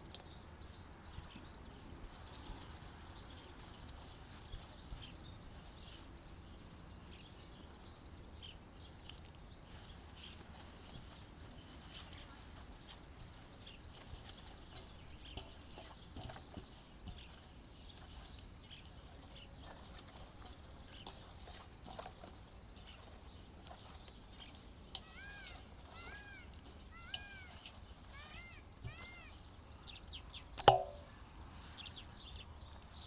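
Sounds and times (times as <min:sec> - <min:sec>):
animal high-pitched calls: 0:25.0 - 0:29.5.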